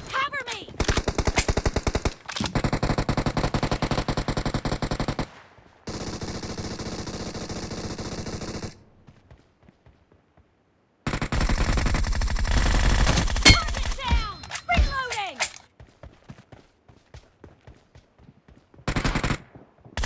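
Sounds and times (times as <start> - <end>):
automatic gunfire: 18.9 - 19.5.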